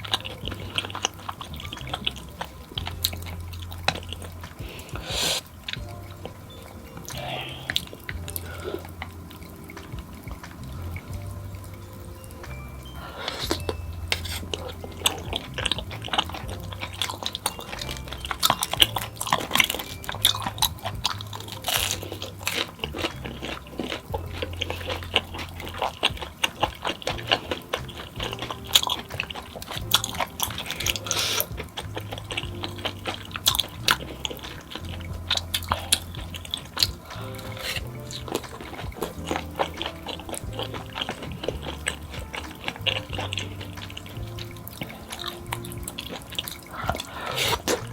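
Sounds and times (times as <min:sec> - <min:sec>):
background music with bass line: 0:00.0 - 0:47.9
wet chewing and slurping: 0:00.0 - 0:47.9
sharp crunches and clicks: 0:13.3 - 0:47.9.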